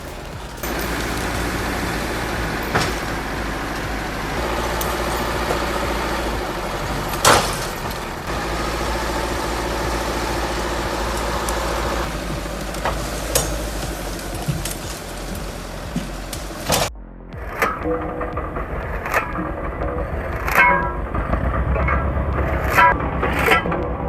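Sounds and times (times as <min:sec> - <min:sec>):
sharp metallic knocks: 0:00.0 - 0:16.9
heavy engine running: 0:00.0 - 0:17.0.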